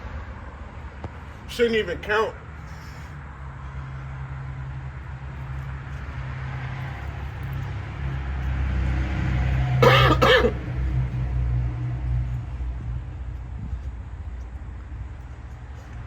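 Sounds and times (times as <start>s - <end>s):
man coughing: 9.8s - 10.6s.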